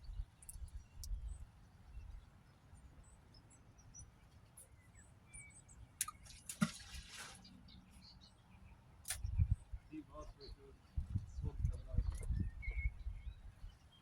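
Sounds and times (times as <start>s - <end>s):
birds chirping: 0.0s - 14.0s
sharp click: 9.0s - 9.4s
low wind rumble: 9.2s - 13.8s.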